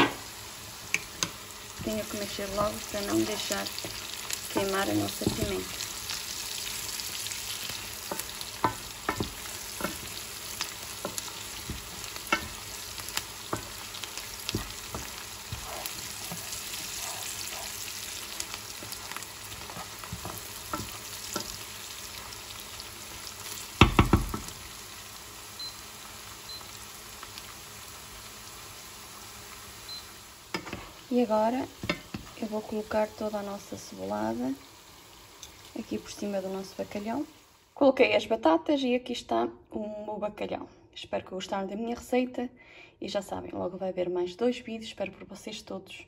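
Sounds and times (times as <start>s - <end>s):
vegetables sizzling in oil: 0.0s - 38.2s
wooden spoon scraping and tapping pan: 0.9s - 5.7s, 8.0s - 21.8s, 31.8s - 32.4s.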